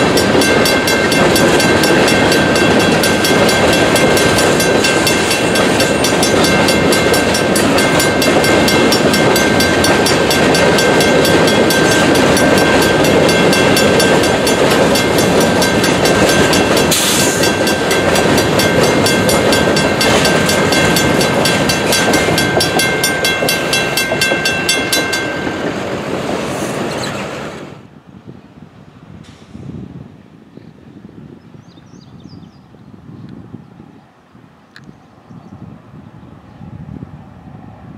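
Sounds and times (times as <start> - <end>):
crossing bell ringing: 0.0 - 26.1
train wheels clacking over joints: 0.0 - 27.4.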